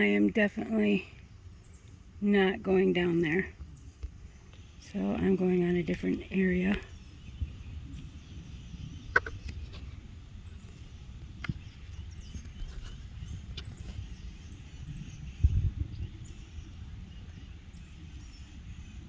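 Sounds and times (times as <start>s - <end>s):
walking movement rumble: 0.0s - 8.2s
wind on microphone: 0.0s - 19.0s
faint bird chirps: 3.2s - 19.0s.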